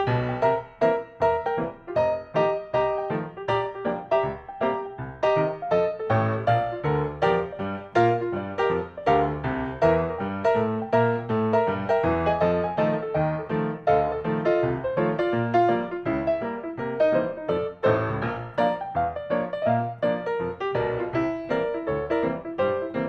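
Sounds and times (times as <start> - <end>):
piano background music: 0.0 - 23.0.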